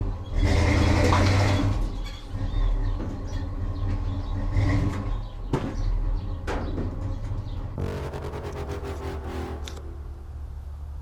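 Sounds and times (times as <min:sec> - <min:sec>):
vehicle engine rumbling: 0:07.6 - 0:11.0.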